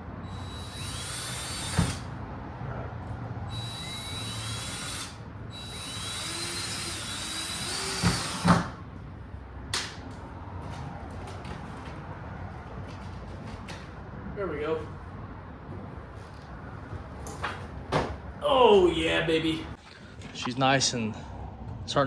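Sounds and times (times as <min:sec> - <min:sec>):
power drill whining: 0:00.3 - 0:02.1, 0:03.5 - 0:08.7.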